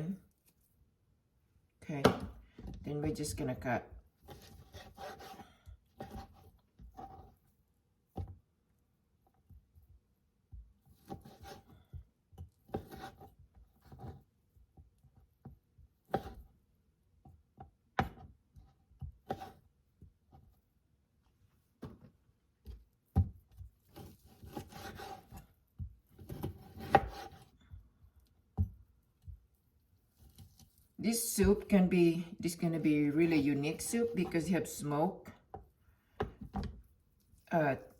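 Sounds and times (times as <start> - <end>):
knife slicing on cutting board: 4.2 - 5.4, 23.9 - 25.4, 26.2 - 27.5.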